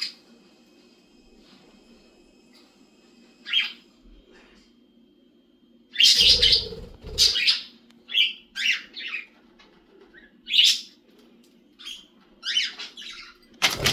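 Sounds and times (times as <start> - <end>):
faint steady hum: 0.0 - 8.6
bird chirping: 6.0 - 7.6.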